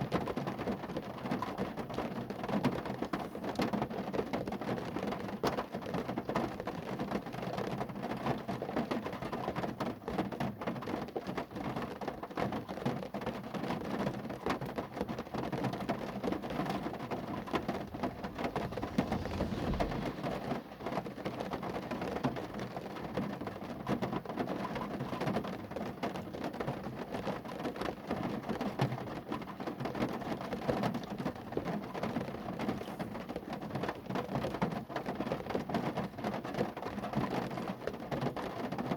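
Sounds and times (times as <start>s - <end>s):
rain pattering on a car: 0.0s - 38.9s
low thud: 17.0s - 22.0s.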